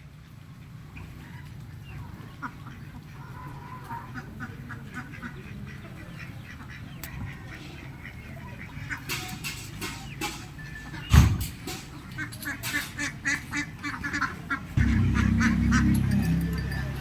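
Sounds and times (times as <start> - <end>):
ducks quacking: 0.2 - 17.0
steady low rumble: 14.8 - 17.0.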